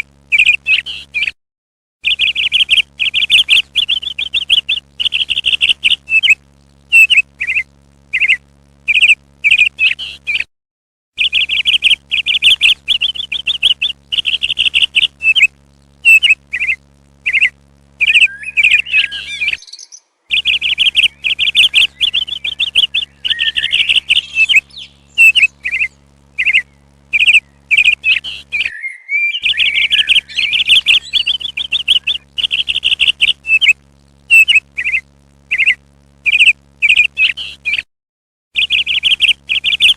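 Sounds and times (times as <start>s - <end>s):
steady low hum: 0.0s - 1.2s, 2.1s - 10.4s, 11.2s - 28.7s, 29.4s - 37.8s
parrots chirping: 16.1s - 37.8s, 38.6s - 39.9s.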